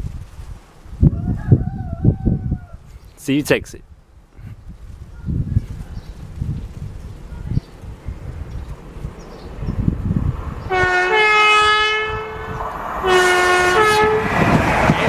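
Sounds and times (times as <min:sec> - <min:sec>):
train rushing past: 0:08.2 - 0:15.0
two-tone train horn: 0:10.7 - 0:15.0.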